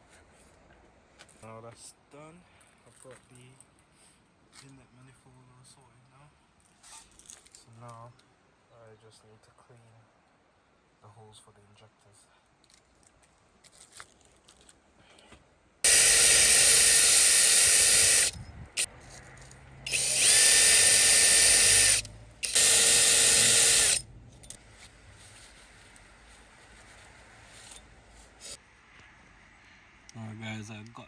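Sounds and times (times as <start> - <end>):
tool whirring hiss: 15.9 - 18.9, 19.9 - 24.6, 27.6 - 28.6.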